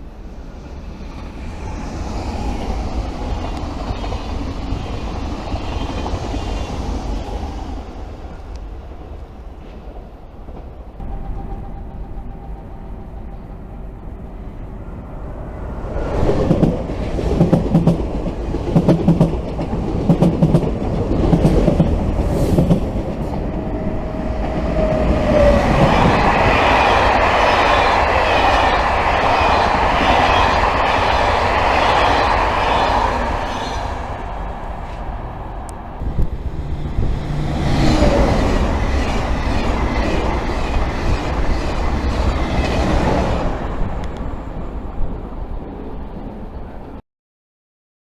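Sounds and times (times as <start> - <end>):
train rolling rush: 0.0 - 47.0
train wheels clacking on rail joints: 16.4 - 23.7.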